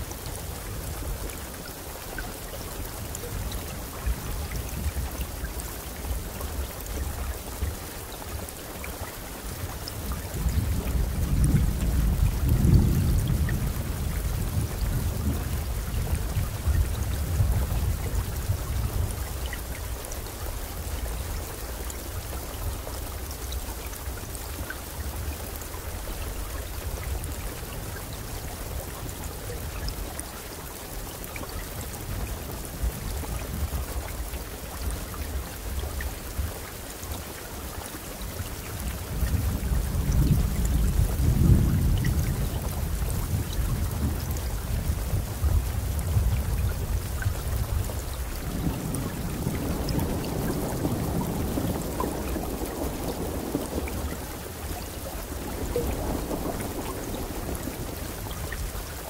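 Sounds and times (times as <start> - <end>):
steady rainfall: 0.0 - 59.0
thunder rumbling: 39.3 - 59.0.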